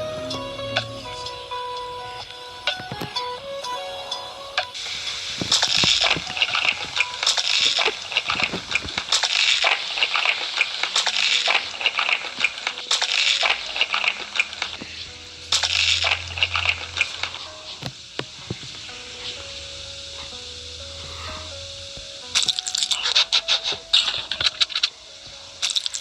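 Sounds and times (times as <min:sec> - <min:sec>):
crunchy food being chewed: 0:05.0 - 0:10.4, 0:22.4 - 0:23.2, 0:25.6 - 0:26.0.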